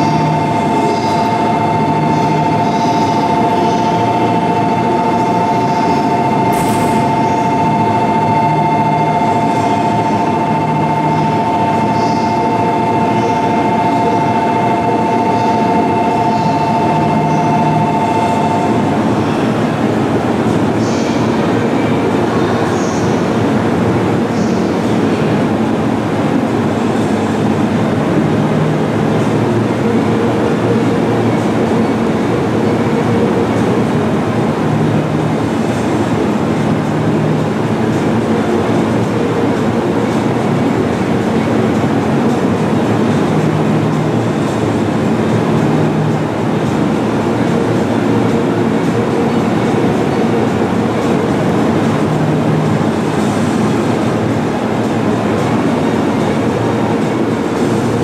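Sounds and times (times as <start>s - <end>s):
low hums: 0.0s - 20.7s
train rumbling on rails: 0.0s - 58.0s.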